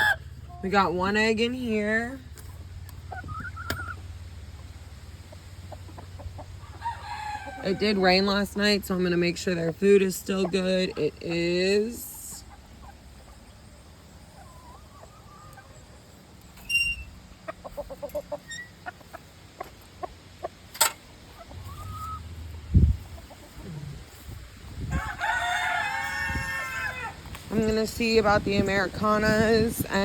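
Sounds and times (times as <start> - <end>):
chickens clucking: 0.0 - 30.0
rooster crowing: 6.7 - 7.8, 24.9 - 27.2
sharp clicks and knocks: 20.7 - 21.0.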